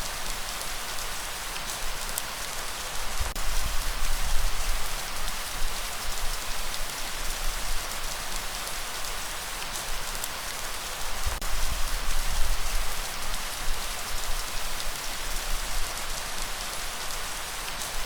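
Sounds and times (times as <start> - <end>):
light rainfall hiss: 0.0 - 18.0.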